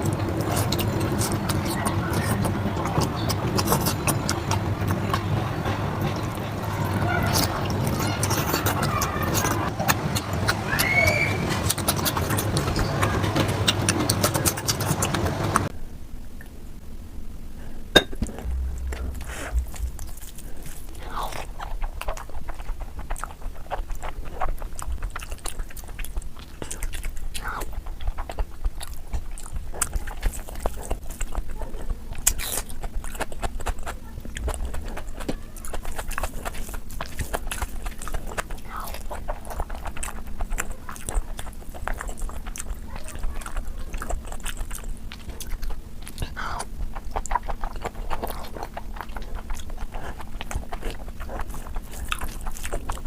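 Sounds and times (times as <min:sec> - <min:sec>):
chewing and wet mouth smacks: 0:00.0 - 0:15.7, 0:18.2 - 0:53.0
loud dense noise: 0:00.0 - 0:15.7, 0:17.9 - 0:21.4.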